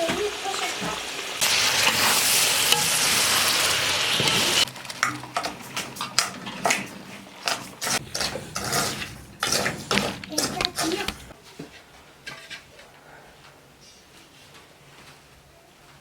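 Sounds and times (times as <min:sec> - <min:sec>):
food sizzling in hot oil: 0:00.0 - 0:06.1
utensil scraping a pot: 0:04.2 - 0:11.4.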